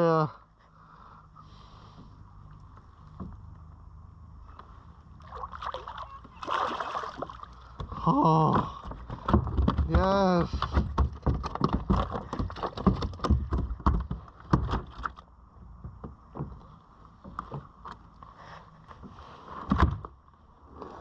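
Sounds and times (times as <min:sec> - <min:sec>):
knocks and thuds on a kayak: 0:07.2 - 0:17.8.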